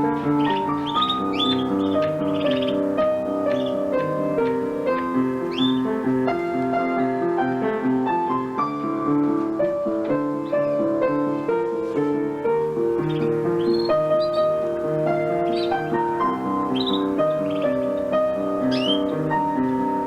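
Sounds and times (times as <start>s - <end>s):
high bird chirps: 0.0s - 6.4s, 12.8s - 19.6s
piano music: 0.0s - 20.0s.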